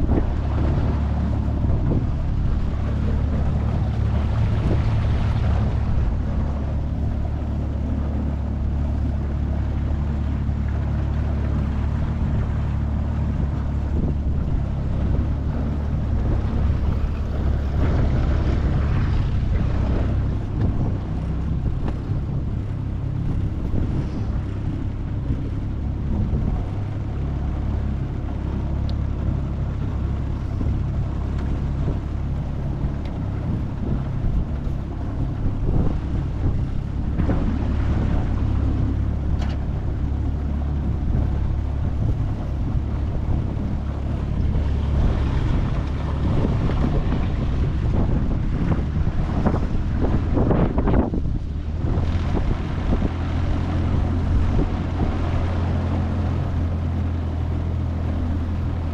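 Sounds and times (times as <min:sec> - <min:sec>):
outboard motor humming: 0:00.0 - 0:58.9
wind on microphone: 0:00.0 - 0:58.9.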